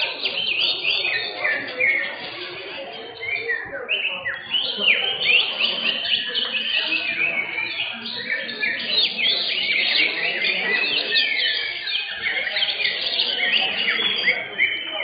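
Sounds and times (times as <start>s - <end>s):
birds chirping in chorus: 0.0s - 15.0s.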